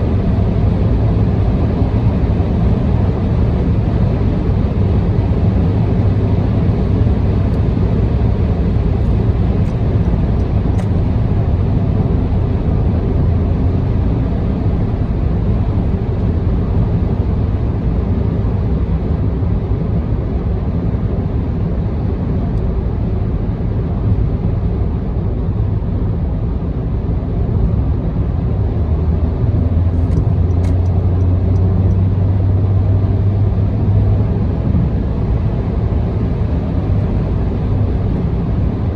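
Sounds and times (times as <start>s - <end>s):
low engine drone: 0.0s - 38.9s
tyre and road rumble: 29.0s - 32.2s.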